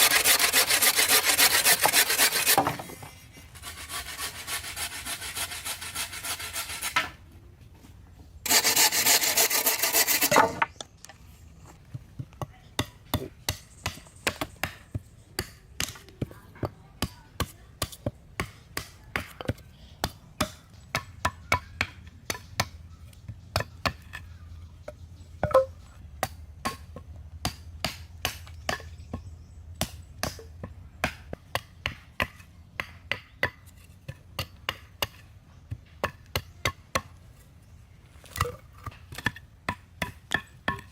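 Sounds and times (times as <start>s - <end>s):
hand saw sawing wood: 0.0s - 7.2s, 8.4s - 10.7s.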